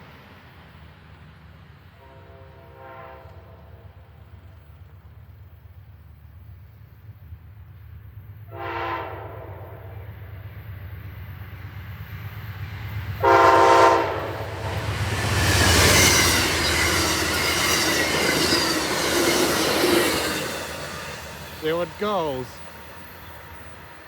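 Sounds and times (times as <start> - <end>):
train wheels on rails: 0.0 - 24.0
train horn: 2.0 - 4.2, 8.5 - 10.1, 13.2 - 16.7
locomotive engine rumble: 10.1 - 24.0.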